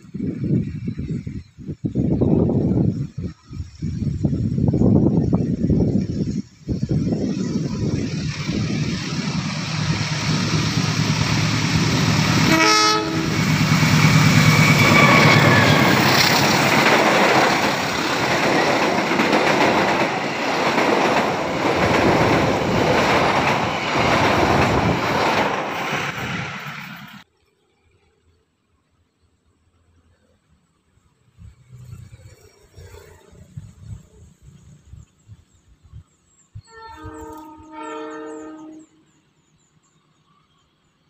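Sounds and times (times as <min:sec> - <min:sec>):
train coaches passing: 0:00.1 - 0:27.2, 0:31.4 - 0:41.0
train horn blast: 0:12.3 - 0:16.0, 0:36.6 - 0:39.2.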